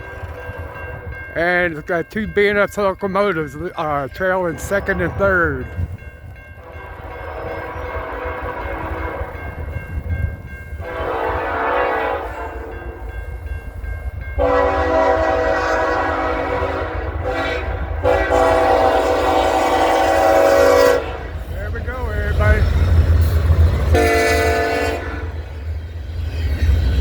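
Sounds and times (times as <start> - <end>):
low rumble of train: 0.0 - 27.0
locomotive air horn blasts: 6.6 - 9.4, 10.8 - 12.7, 14.4 - 21.4, 23.9 - 25.4.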